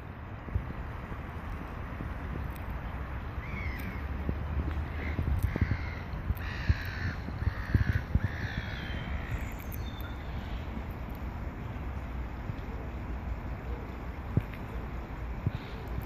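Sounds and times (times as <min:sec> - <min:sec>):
wind rumble on microphone: 0:00.0 - 0:16.0
bird harsh calls: 0:04.9 - 0:10.7.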